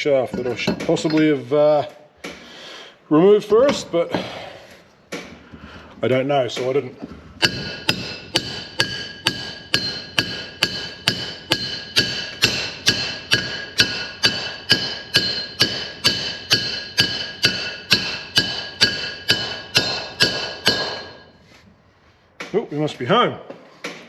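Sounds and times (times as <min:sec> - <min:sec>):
hammer striking metal: 0:07.4 - 0:21.4.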